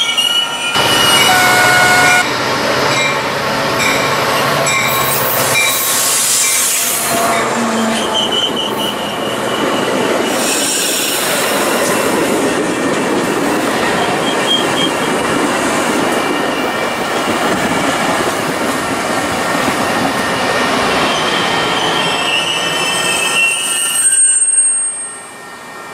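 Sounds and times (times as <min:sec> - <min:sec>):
high-pitched wheel squeal: 0:00.0 - 0:02.2, 0:05.0 - 0:11.3, 0:21.0 - 0:25.9.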